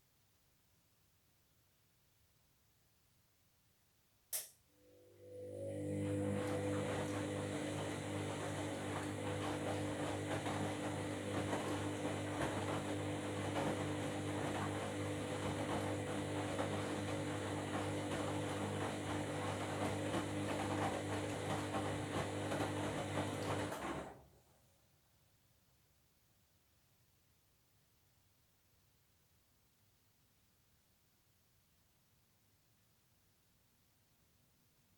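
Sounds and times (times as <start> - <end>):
washing machine running: 5.0 - 24.4.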